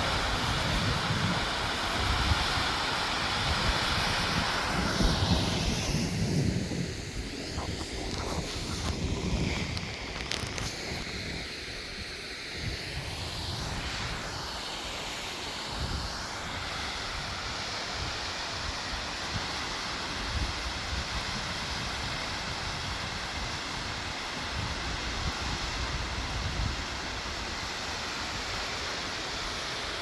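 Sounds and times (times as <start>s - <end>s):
wind buffeting microphone: 3.4s - 11.5s.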